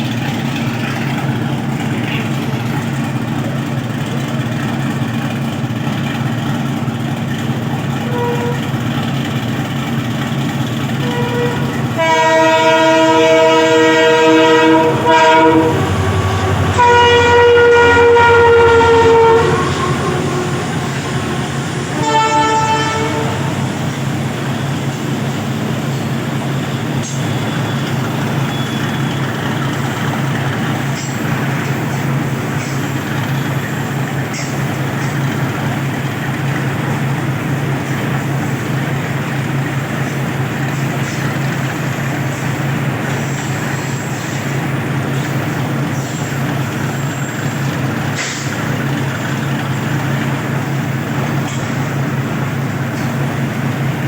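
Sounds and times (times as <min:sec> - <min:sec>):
train rumbling past: 0:00.0 - 0:54.0
train wheels clicking: 0:00.0 - 0:54.0
train horn: 0:08.0 - 0:08.9, 0:11.0 - 0:24.6.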